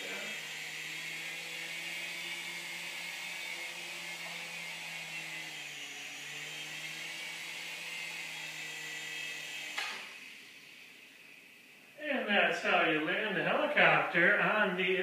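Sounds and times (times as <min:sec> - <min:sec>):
toy helicopter rotor whirring: 0:00.0 - 0:10.7.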